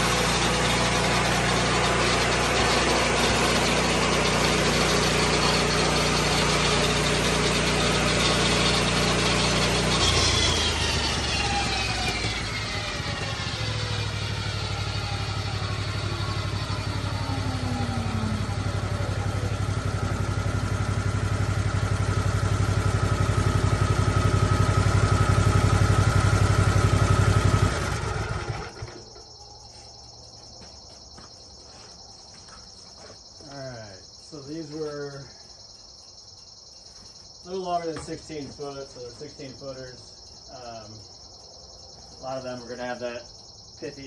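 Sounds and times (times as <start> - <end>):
sawmill engine idling: 0.0 - 29.9
saw blade whine: 0.0 - 44.0
crickets chirping: 9.7 - 44.0.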